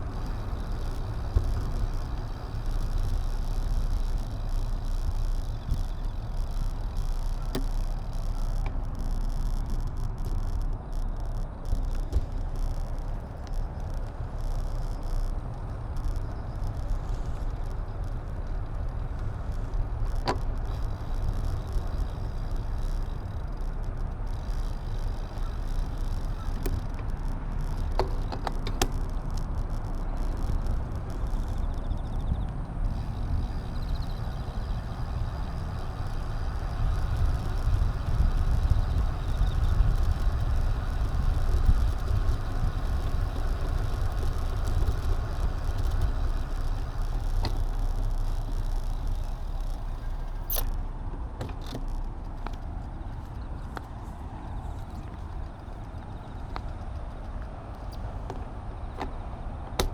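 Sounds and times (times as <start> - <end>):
small rattles: 0.0 - 59.9
tyre and road noise: 0.0 - 59.9
wind rumble on microphone: 0.0 - 59.9
sharp click: 44.5 - 50.8.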